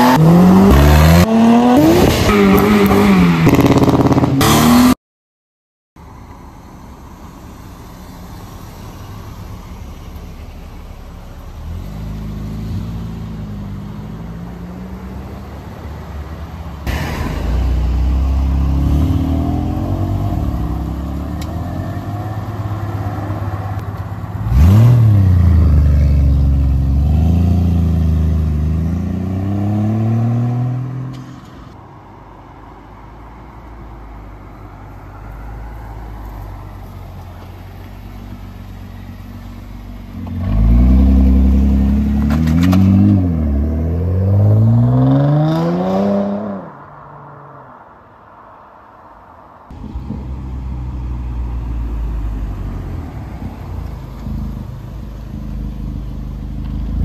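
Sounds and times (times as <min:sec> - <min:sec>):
car engine revving hard: 0:00.0 - 0:05.0, 0:24.4 - 0:31.0, 0:40.2 - 0:46.7
cars pulling away: 0:06.0 - 0:48.4, 0:49.2 - 0:57.0.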